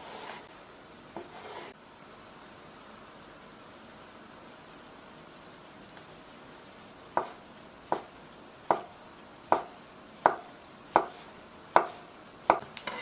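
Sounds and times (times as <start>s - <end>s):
knife chopping on cutting board: 8.7s - 8.9s, 9.5s - 12.7s.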